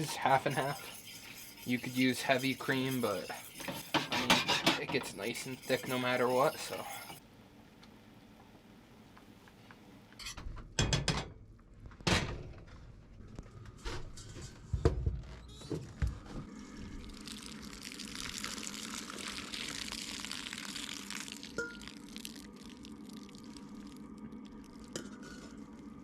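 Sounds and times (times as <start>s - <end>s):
liquid sizzling in hot pan: 0.0s - 7.2s, 17.1s - 25.5s
carton and utensil knocking pan: 3.6s - 5.1s.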